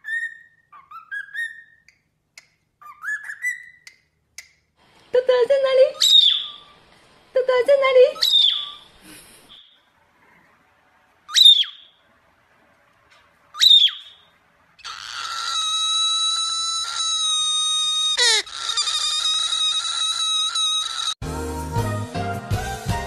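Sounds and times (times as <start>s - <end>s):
cockatiel chirping and screeching: 0.0s - 1.8s, 2.8s - 3.8s, 6.0s - 6.8s, 8.2s - 8.8s, 11.3s - 11.9s, 13.6s - 14.2s, 14.8s - 21.2s.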